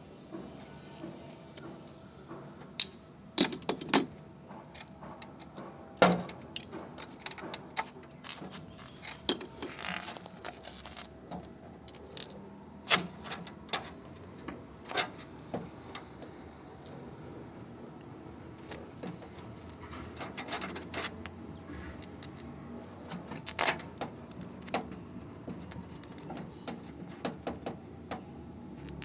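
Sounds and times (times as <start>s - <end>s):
metal hand tools clinking: 6.3s - 11.1s.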